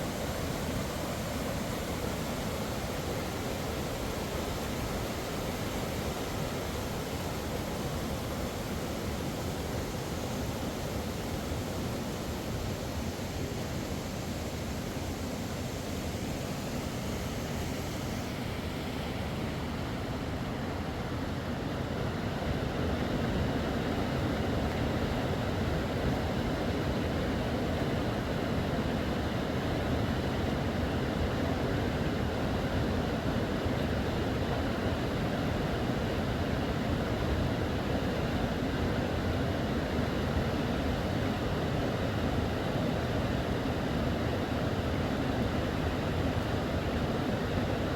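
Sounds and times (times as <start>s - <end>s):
river water rushing: 0.0s - 20.2s.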